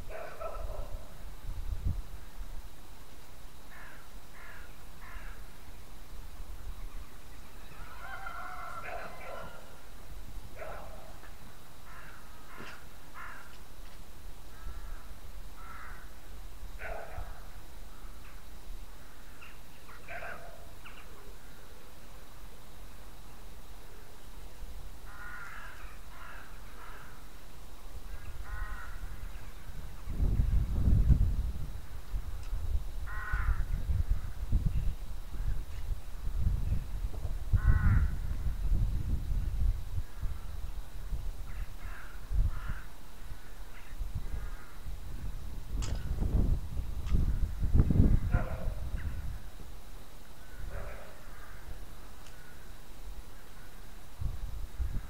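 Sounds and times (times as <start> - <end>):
wind rumble on microphone: 0.0 - 2.9, 28.0 - 49.7, 53.6 - 55.0
bird calling: 6.8 - 9.9, 10.6 - 13.6, 19.0 - 21.8, 25.1 - 27.3.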